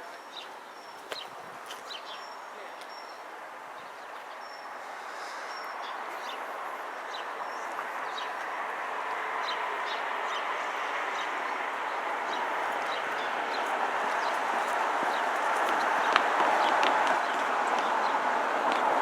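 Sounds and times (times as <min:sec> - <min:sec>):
small birds chirping: 0:00.0 - 0:19.0
broad rushing noise: 0:04.8 - 0:19.0.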